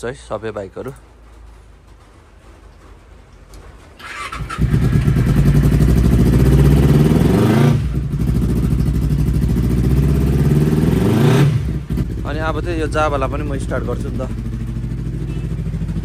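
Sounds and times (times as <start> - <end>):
motorcycle electric starter cranking: 4.0 - 6.4
motorcycle engine idling: 4.1 - 7.2, 7.9 - 10.8, 11.7 - 16.0.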